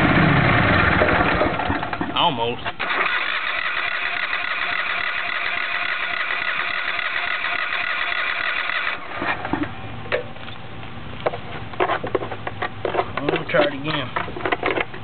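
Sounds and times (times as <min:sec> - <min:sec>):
electric starter cranking engine: 0:00.0 - 0:02.0, 0:02.7 - 0:09.6.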